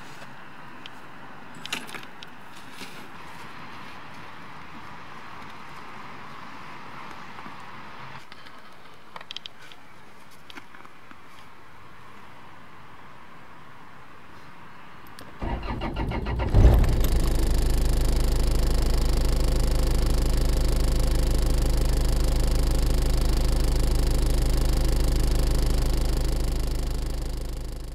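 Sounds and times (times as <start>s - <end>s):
car engine idling: 15.4s - 27.9s
car starter cranking: 15.4s - 27.9s.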